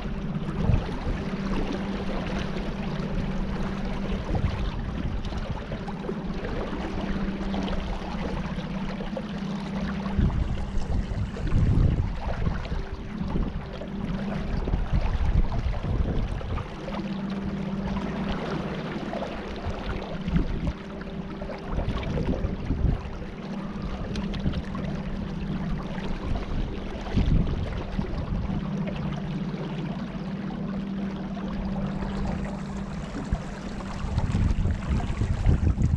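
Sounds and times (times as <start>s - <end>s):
wind buffeting microphone: 0.0s - 8.6s, 10.0s - 18.6s, 21.7s - 29.0s, 31.7s - 35.9s
boat motor running: 0.0s - 35.9s.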